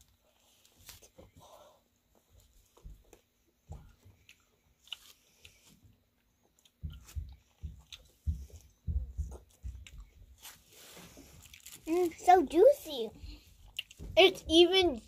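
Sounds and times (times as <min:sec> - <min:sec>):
close-up chewing: 0:02.2 - 0:12.2, 0:13.2 - 0:14.2.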